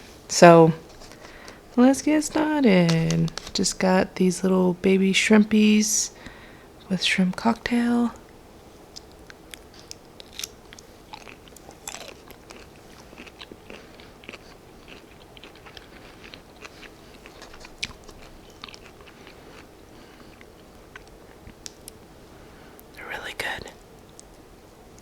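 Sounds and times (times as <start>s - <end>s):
person biting and chewing: 9.0s - 21.7s.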